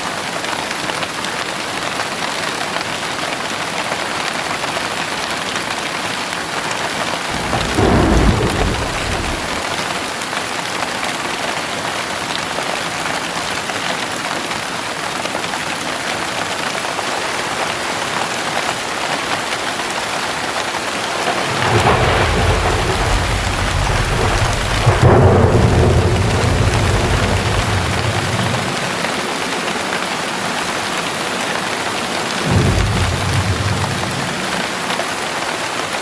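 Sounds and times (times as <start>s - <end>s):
heavy rain: 0.0s - 36.0s
thunder rumbling: 7.2s - 10.2s, 19.2s - 30.8s, 31.6s - 35.2s.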